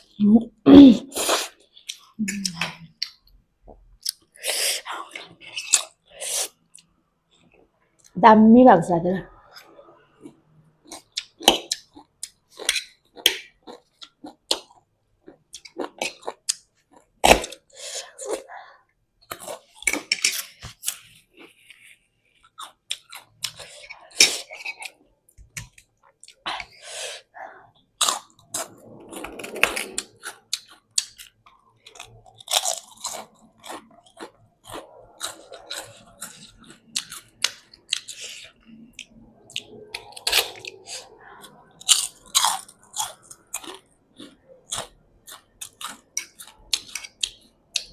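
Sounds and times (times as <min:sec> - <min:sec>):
person chewing noodles: 0:01.1 - 0:08.1, 0:09.4 - 0:47.9
wet chewing and mouth smacks: 0:28.0 - 0:47.9.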